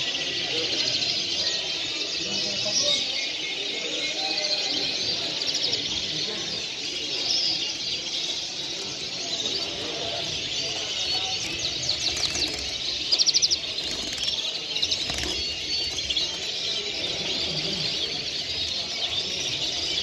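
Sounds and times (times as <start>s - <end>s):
songbirds chirping and singing: 0.0s - 20.0s.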